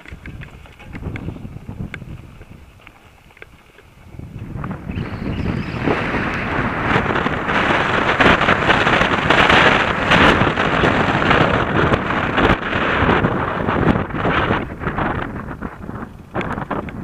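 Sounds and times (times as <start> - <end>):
bike knocking and rattling: 0.0 - 17.0
wind rushing over microphone: 0.0 - 17.0.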